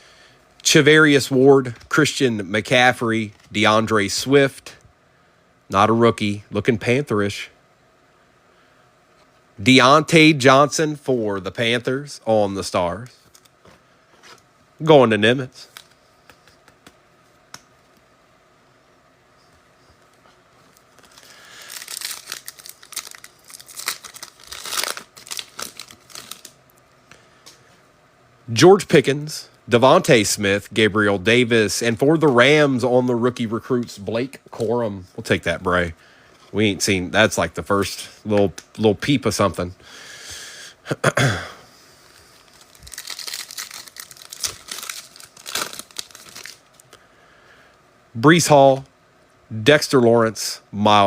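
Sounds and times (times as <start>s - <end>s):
wrapper tearing and crinkling: 21.0s - 26.6s, 42.4s - 46.8s.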